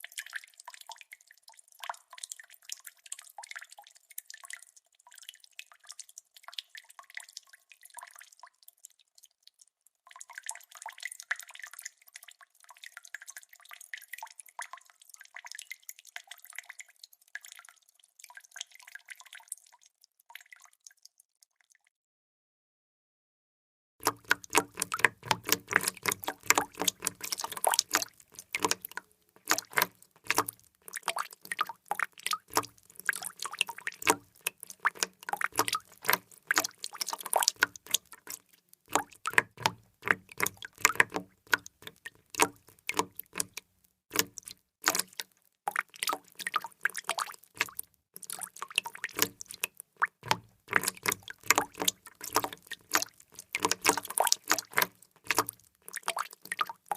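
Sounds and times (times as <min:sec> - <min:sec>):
water drops splashing: 0:24.0 - 0:56.9.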